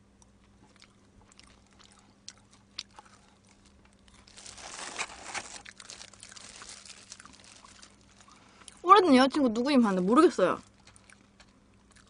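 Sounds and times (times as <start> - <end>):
chewing with crunches: 0.2 - 8.8, 10.3 - 12.0
crinkly plastic glove rustle: 3.1 - 8.7.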